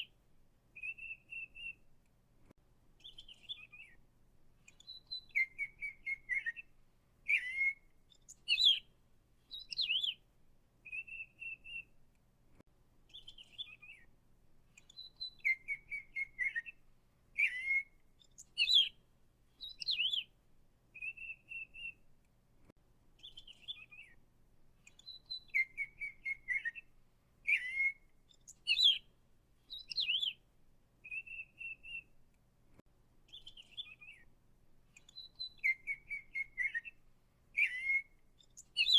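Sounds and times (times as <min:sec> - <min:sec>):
songbird whistling and trilling: 0:00.8 - 0:01.8, 0:03.0 - 0:04.0, 0:04.7 - 0:08.9, 0:09.5 - 0:10.2, 0:10.8 - 0:11.9, 0:13.1 - 0:14.1, 0:14.8 - 0:16.8, 0:17.4 - 0:19.0, 0:19.6 - 0:20.3, 0:21.0 - 0:22.0, 0:23.2 - 0:24.2, 0:24.8 - 0:29.1, 0:29.7 - 0:30.4, 0:31.0 - 0:32.1, 0:33.3 - 0:34.3, 0:35.0 - 0:38.9.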